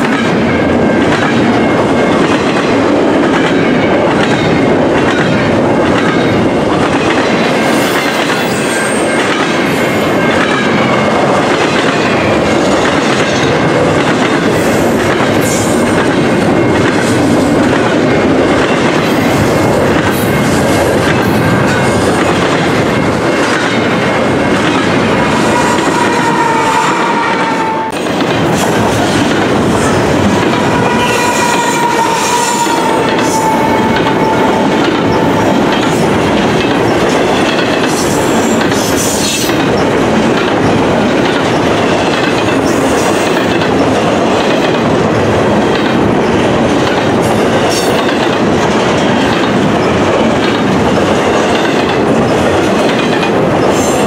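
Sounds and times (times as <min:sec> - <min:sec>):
freight train wheels rumbling: 0:00.0 - 0:54.0
train wheel squeals: 0:07.6 - 0:11.2, 0:29.8 - 0:36.2.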